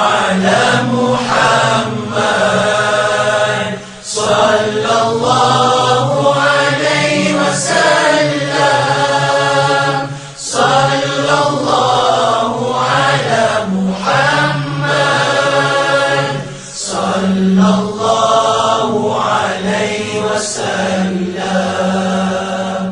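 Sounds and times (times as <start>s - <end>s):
voices singing devotional chant: 0.0s - 22.9s.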